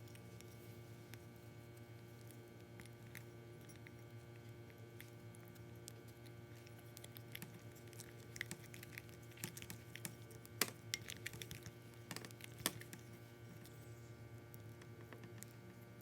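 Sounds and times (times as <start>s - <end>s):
faint steady hum: 0.0s - 16.0s
sticky slime clicks and crackles: 6.9s - 13.0s.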